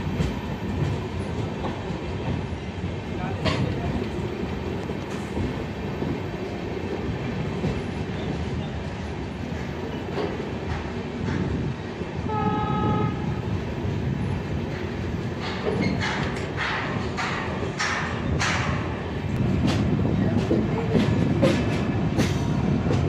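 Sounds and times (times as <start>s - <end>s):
rail clacks: 0.0s - 23.0s
train wheels rumbling on rails: 0.0s - 23.0s
train horn: 12.2s - 13.4s.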